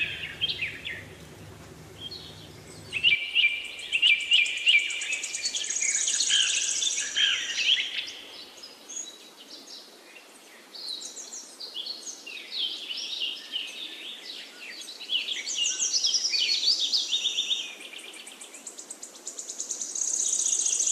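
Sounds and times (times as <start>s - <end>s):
high buzzing bird trill: 0.0s - 3.2s
birds chirping and singing: 0.0s - 3.8s.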